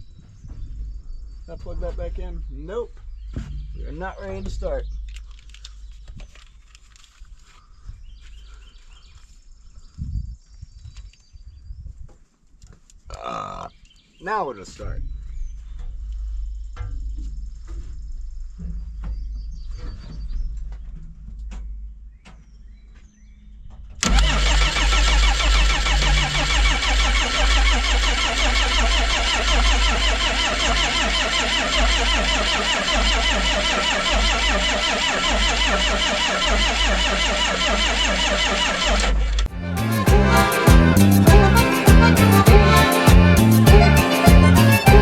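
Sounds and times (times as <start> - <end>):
diesel engine starter cranking: 24.0 - 45.0.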